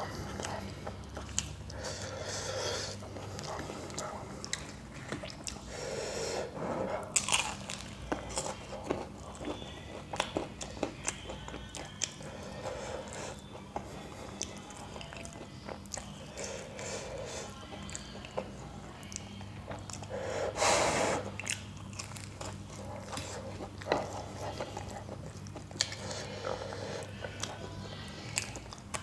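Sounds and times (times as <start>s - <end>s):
wet chewing mouth sounds: 0.0s - 5.8s, 6.8s - 29.0s
crisp pastry crunches: 7.1s - 9.2s, 21.4s - 22.8s.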